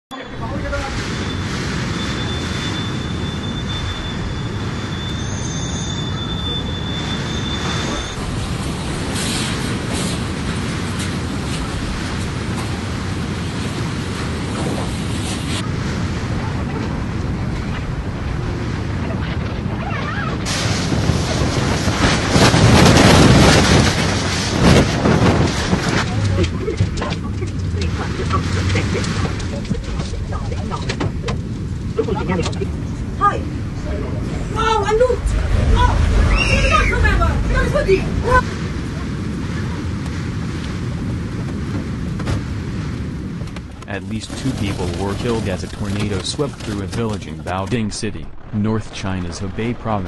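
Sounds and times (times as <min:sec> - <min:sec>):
tornado wind roaring: 0:00.1 - 0:50.0
thin steady whistle: 0:01.2 - 0:08.2.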